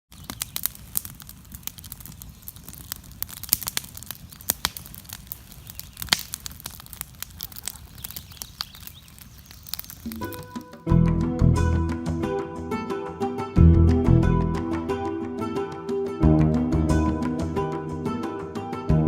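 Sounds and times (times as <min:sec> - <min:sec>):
patter of light ticks: 0:00.1 - 0:10.2.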